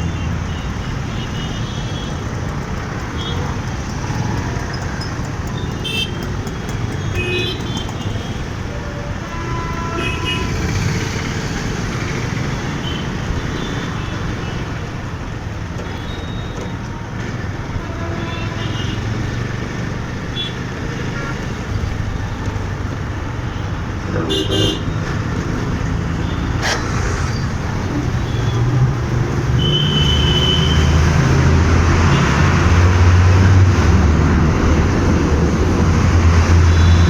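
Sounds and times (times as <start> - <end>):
city road traffic: 0.0 - 37.0
motorcycle engine and road rumble: 0.0 - 37.0
car horn toots: 5.6 - 8.4, 24.2 - 25.0, 29.6 - 31.0.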